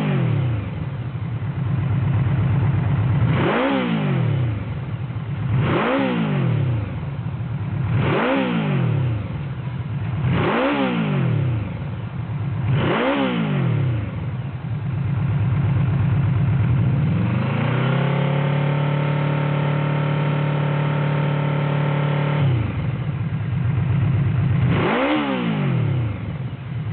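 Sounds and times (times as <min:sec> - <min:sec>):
motorcycle engine idling and revving: 0:00.0 - 0:26.9.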